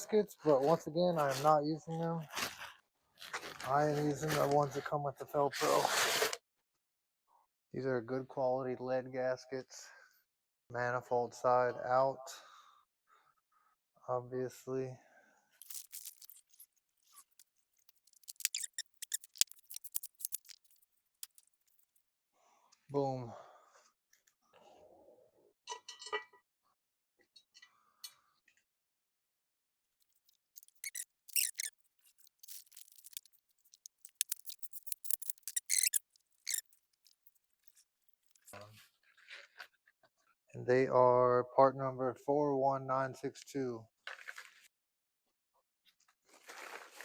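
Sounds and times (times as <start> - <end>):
light metal clicks and scrapes: 15.6 - 22.0, 30.0 - 38.7.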